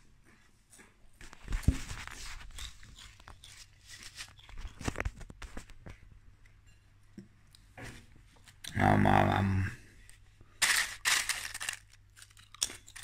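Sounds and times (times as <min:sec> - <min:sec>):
potato chips crunching: 0:10.6 - 0:13.0.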